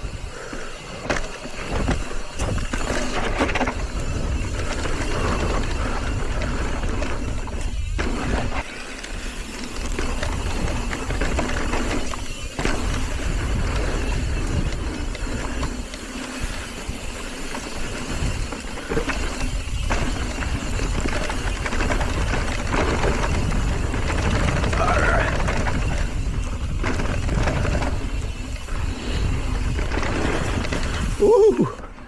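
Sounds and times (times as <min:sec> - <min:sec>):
bike rattling over rocks: 0:00.0 - 0:32.0
wind buffeting microphone: 0:10.2 - 0:15.8, 0:16.4 - 0:32.0.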